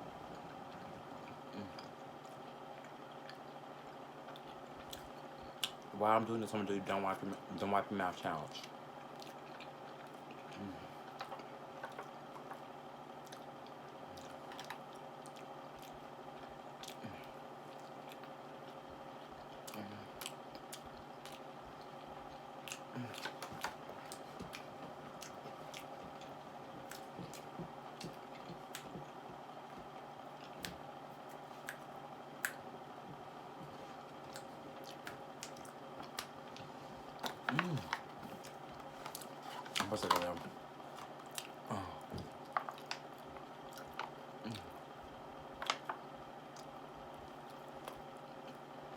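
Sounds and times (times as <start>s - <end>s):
faint steady hum: 0.0s - 48.9s
person chewing food: 0.2s - 5.9s, 8.6s - 48.9s.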